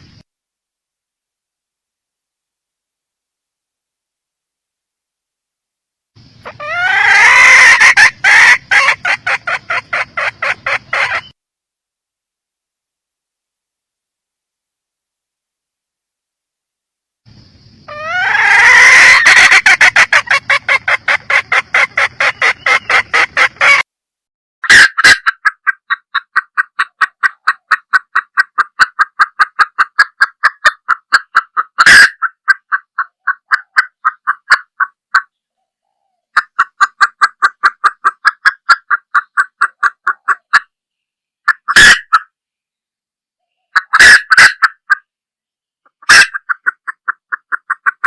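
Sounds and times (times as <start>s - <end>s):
hen clucking: 6.2s - 11.4s, 17.8s - 23.9s, 24.6s - 40.7s, 41.4s - 42.3s, 43.5s - 45.1s, 45.9s - 48.0s.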